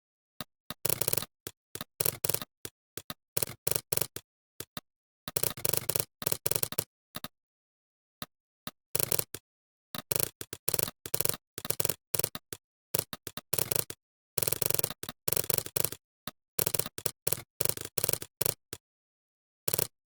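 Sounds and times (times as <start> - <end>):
computer keyboard typing: 0.8 - 7.3, 9.0 - 9.4, 10.0 - 16.0, 16.6 - 18.8, 19.7 - 20.0.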